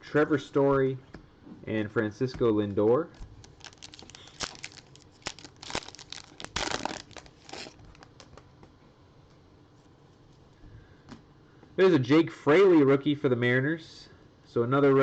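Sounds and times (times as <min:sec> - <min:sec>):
wrapper crinkling and tearing: 0:03.4 - 0:08.3.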